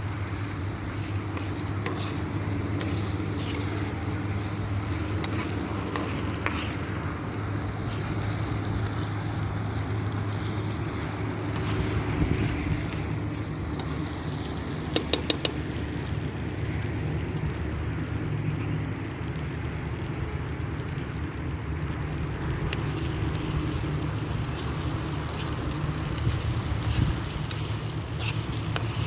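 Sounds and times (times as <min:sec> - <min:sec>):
wind rumble on microphone: 0:03.4 - 0:14.6, 0:20.0 - 0:29.0.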